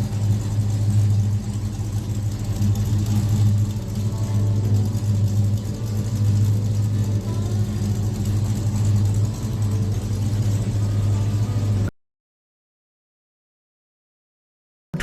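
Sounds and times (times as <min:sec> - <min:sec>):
car engine running: 0:00.0 - 0:11.9.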